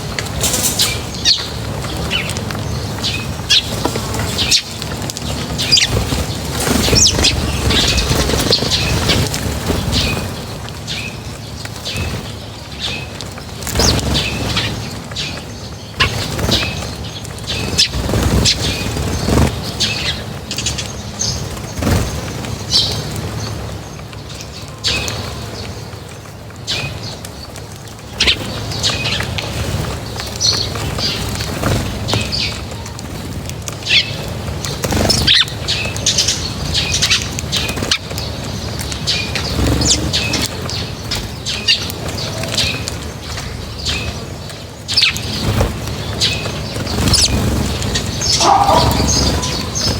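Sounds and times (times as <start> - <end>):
flurries of bird wingbeats: 0.1 - 10.5, 39.0 - 41.3
high bird chirps: 46.1 - 49.9.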